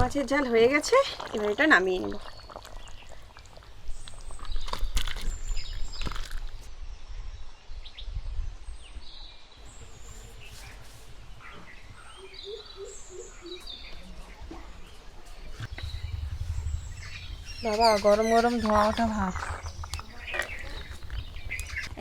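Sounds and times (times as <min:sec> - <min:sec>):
birds chirping: 0:09.6 - 0:22.0.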